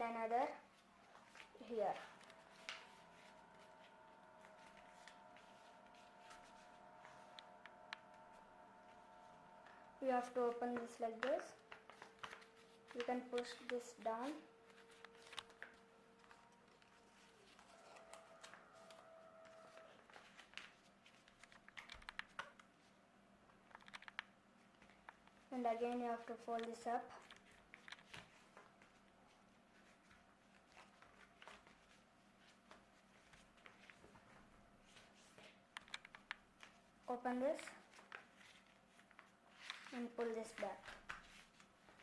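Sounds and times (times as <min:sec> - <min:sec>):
low steady hum: 0:00.0 - 0:21.0
paper rustling and creasing: 0:00.7 - 0:22.9, 0:37.8 - 0:42.0.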